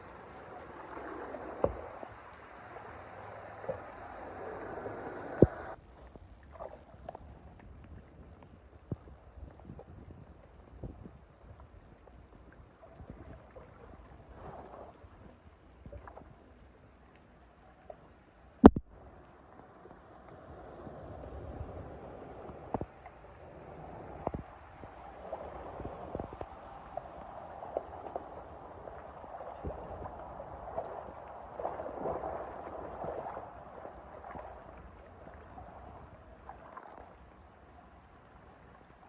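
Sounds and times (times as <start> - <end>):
water splashes: 0.0 - 8.2, 17.8 - 39.0.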